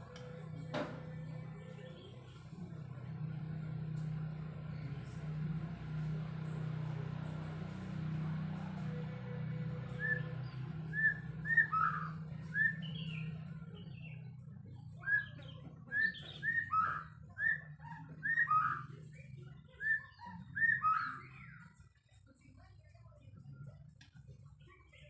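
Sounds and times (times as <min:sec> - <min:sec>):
bird singing whistled notes: 0:09.9 - 0:14.4, 0:15.0 - 0:19.1, 0:19.8 - 0:21.7.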